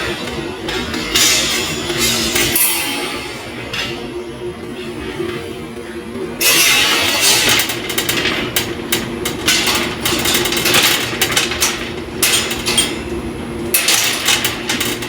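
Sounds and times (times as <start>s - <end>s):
crackling welding hiss: 6.4s - 15.0s
steady low hum: 7.2s - 15.0s.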